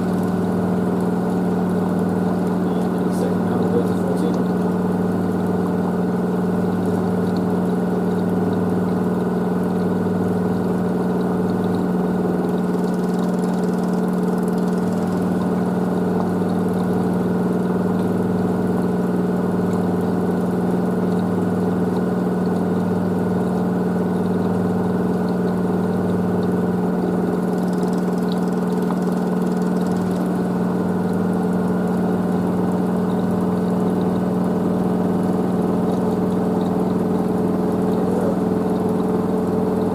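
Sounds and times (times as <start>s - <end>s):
pulsing low hum: 0.0s - 39.9s
washer drum spinning: 0.0s - 39.9s.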